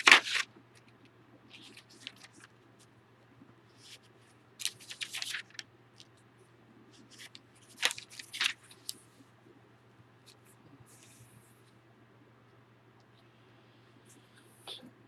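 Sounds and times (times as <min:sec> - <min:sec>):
paper pages rustling: 0:00.0 - 0:00.5, 0:01.5 - 0:02.9, 0:03.7 - 0:06.1, 0:06.9 - 0:09.0.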